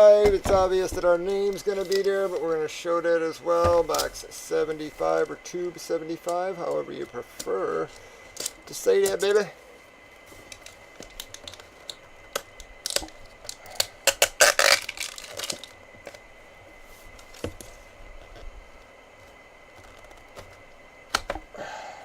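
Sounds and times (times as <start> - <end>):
packaging rustling scrape: 10.2 - 18.6, 19.2 - 20.7.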